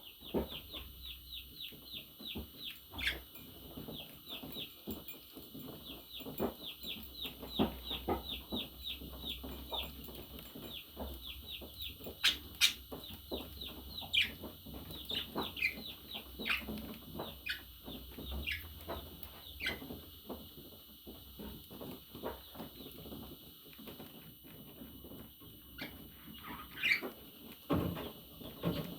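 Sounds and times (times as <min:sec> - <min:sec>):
budgerigar chirping: 0:03.0 - 0:03.3, 0:12.1 - 0:14.5, 0:19.6 - 0:19.8, 0:25.8 - 0:27.1.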